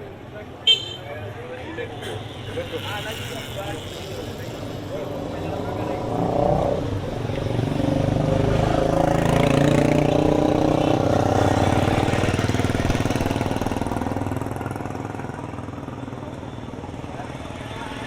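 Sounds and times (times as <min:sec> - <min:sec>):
vehicle engine passing: 0:05.2 - 0:14.6.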